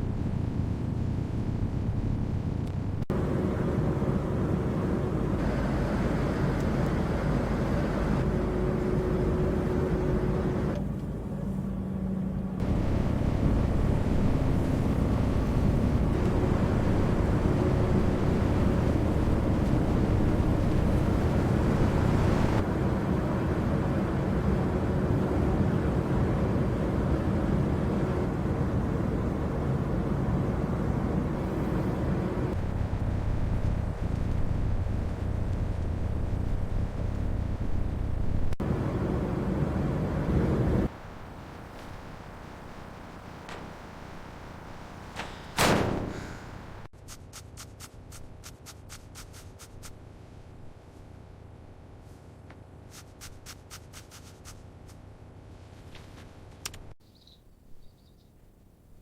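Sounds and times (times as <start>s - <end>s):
truck engine rumbling: 0.0s - 25.3s, 26.0s - 46.9s.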